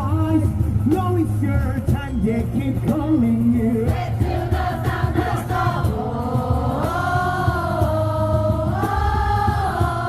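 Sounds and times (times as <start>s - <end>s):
long held wordless singing: 2.8s - 10.0s.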